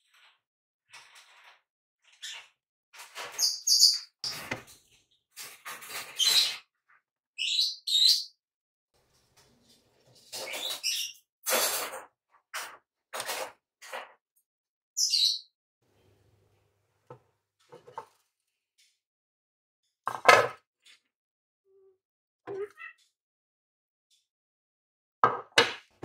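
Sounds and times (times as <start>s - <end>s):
small birds chirping: 3.3s - 5.4s, 7.4s - 8.4s, 15.0s - 15.5s.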